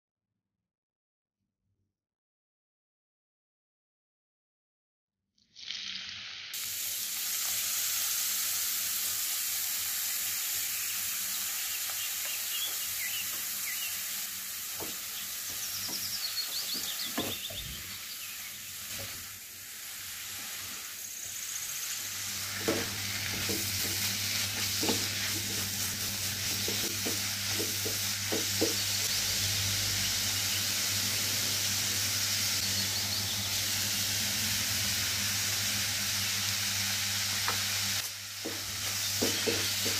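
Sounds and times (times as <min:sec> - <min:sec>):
vegetables sizzling in hot oil: 0:05.4 - 0:39.9
spatula scraping and knocking pan: 0:22.5 - 0:29.0, 0:38.4 - 0:39.9.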